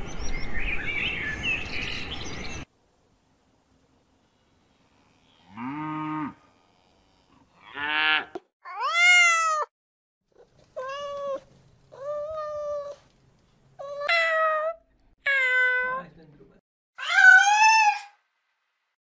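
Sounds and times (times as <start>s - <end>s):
calf mooing: 5.0s - 8.4s
cat meowing: 8.6s - 9.7s, 10.8s - 13.0s, 13.8s - 16.0s.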